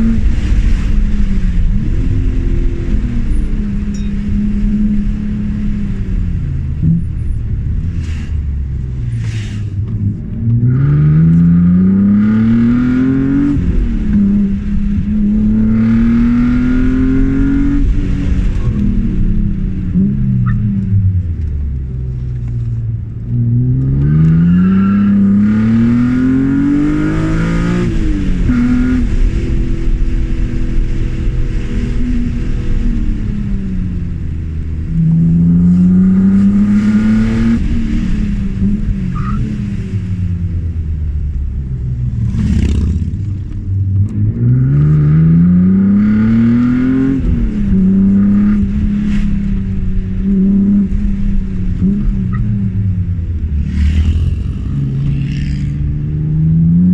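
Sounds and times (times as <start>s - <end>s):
car engine accelerating hard: 0.0s - 56.9s.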